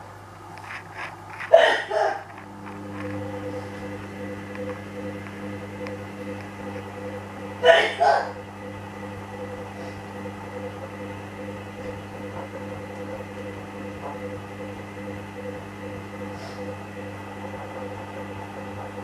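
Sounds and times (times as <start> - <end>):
washing machine humming: 0.0 - 19.0.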